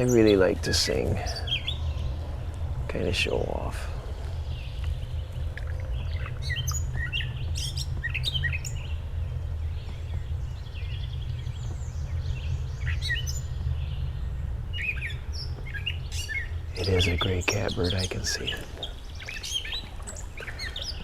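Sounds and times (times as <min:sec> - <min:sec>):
catbird singing: 0:00.0 - 0:21.0
steady low rumble: 0:00.0 - 0:21.0.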